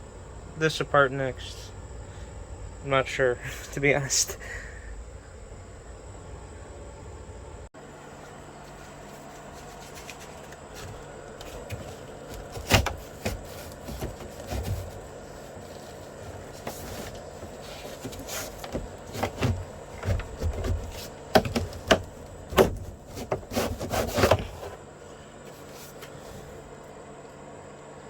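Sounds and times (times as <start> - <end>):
plastic panels knocking and clicking: 10.8 - 15.0, 16.3 - 24.8.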